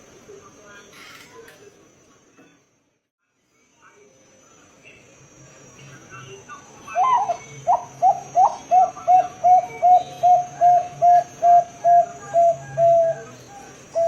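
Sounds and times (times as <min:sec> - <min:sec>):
dove cooing: 0:06.9 - 0:14.0.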